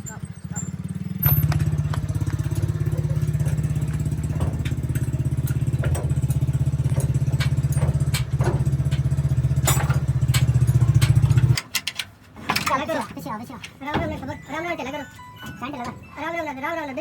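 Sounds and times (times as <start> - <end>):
truck engine idling: 0.0 - 11.6
light metallic clicks and clatter: 1.2 - 14.2.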